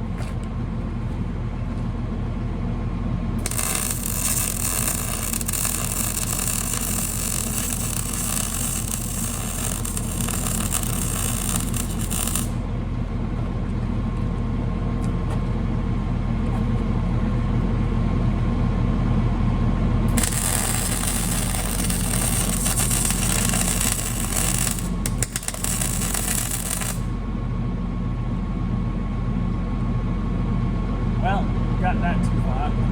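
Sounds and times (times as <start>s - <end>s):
engine running steadily: 0.0s - 32.9s
hissing: 3.4s - 12.6s, 20.1s - 27.1s.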